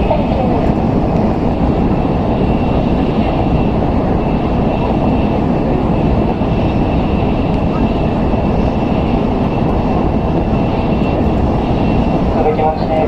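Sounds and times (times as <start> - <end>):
train interior rumble: 0.0 - 13.0.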